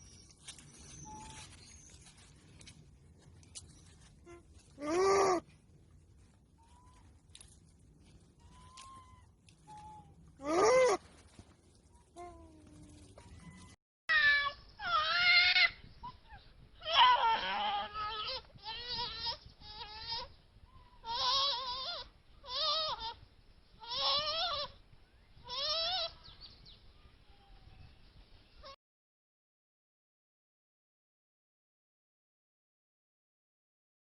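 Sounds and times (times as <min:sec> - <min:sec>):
animal calling: 0:00.5 - 0:02.3, 0:03.5 - 0:05.6, 0:06.2 - 0:23.2, 0:23.8 - 0:24.8, 0:25.4 - 0:26.3.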